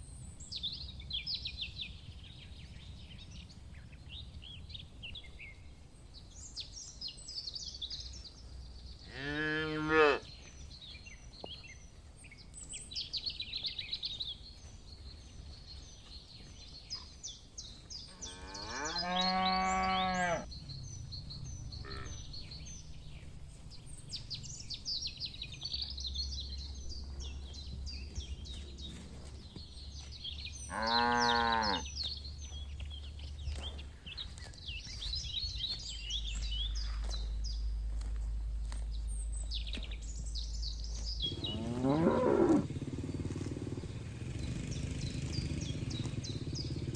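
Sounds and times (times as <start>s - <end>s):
small birds chirping: 0.0s - 46.9s
cattle mooing: 9.1s - 10.2s, 18.1s - 20.5s, 21.8s - 22.3s, 30.7s - 31.9s, 41.3s - 43.9s.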